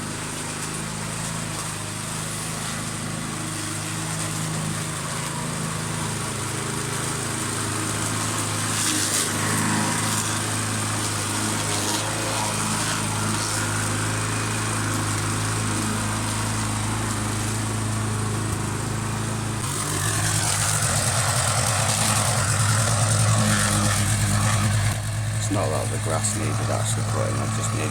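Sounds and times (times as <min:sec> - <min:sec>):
lawn mower engine running: 0:00.0 - 0:27.9.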